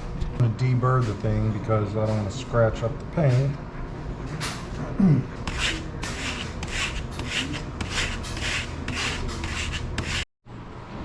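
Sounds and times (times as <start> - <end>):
rubbing strokes deburring metal edge: 5.5 - 10.2.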